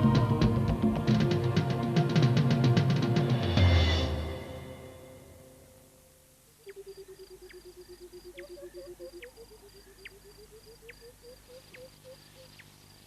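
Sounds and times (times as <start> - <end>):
insects chirping: 5.7 - 13.0
low repeating animal call: 6.5 - 12.8.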